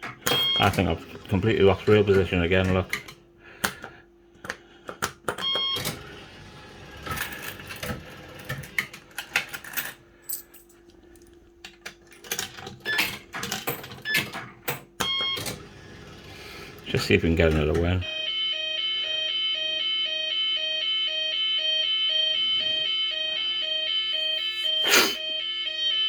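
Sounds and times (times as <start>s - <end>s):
hum of spinning reels: 5.8s - 10.0s.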